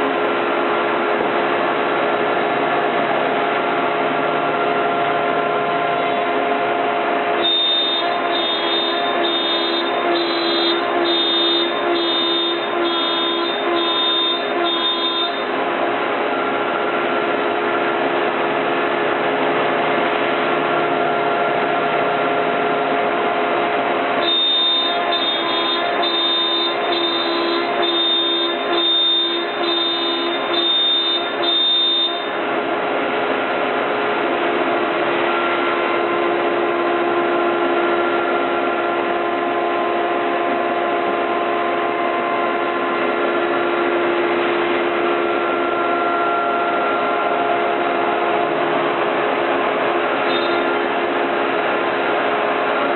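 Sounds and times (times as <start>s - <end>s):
pulsing high tone: 7.4s - 15.6s, 24.2s - 32.4s, 50.3s - 50.8s
router spindle whine: 7.4s - 17.1s, 24.2s - 32.4s, 35.3s - 48.4s.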